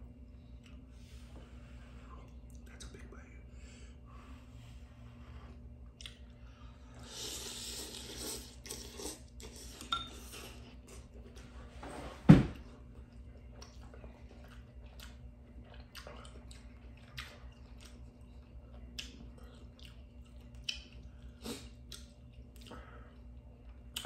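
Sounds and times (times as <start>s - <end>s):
noodles slurped: 7.0s - 10.6s
heavy thump: 12.2s - 12.6s.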